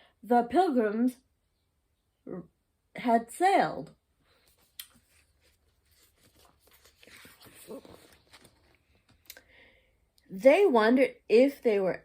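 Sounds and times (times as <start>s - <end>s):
book pages rustling: 4.3s - 9.3s.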